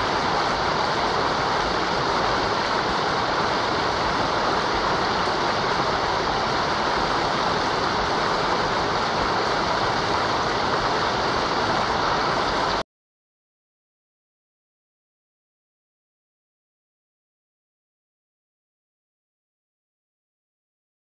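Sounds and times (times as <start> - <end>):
river water flowing: 0.0 - 12.8.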